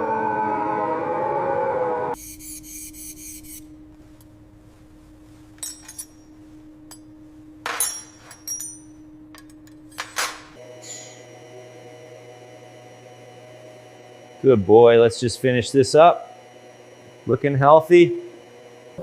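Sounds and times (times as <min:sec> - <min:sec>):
faint steady hum: 0:01.8 - 0:19.0
hard objects clinking: 0:05.6 - 0:06.3, 0:06.9 - 0:11.1.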